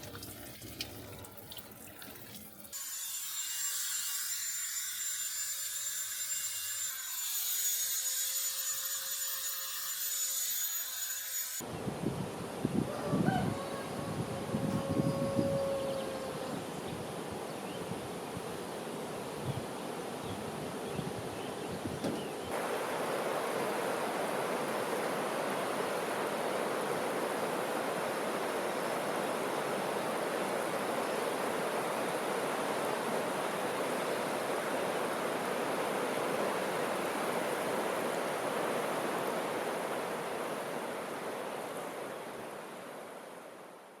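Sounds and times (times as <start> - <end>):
running water rushing: 0.0 - 2.8, 22.5 - 43.7.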